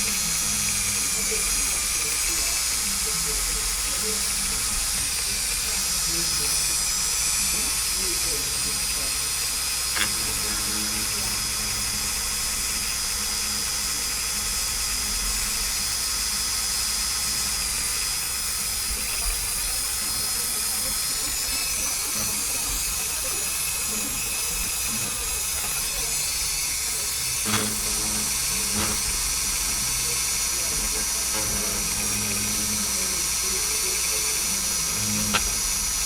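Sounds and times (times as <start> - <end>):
rotary tool high whine: 0.0 - 36.0.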